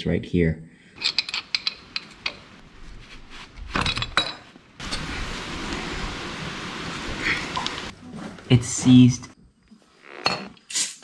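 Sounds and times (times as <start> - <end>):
metal tools clinking: 1.0 - 2.4
steady hiss: 4.8 - 9.4.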